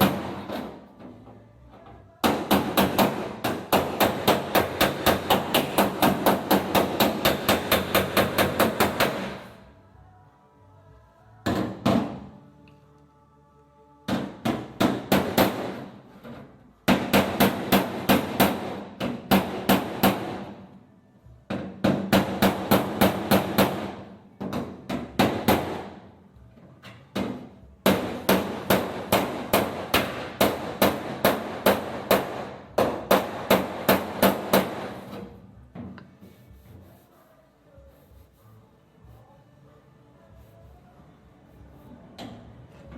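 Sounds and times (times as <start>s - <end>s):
hammer striking steel panel: 2.2s - 9.5s, 14.1s - 15.9s, 16.8s - 20.6s, 27.1s - 35.2s.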